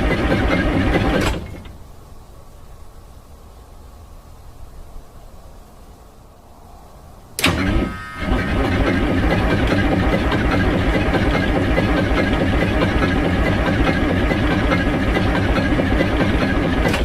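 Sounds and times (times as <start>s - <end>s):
diesel engine idling: 7.4s - 17.0s.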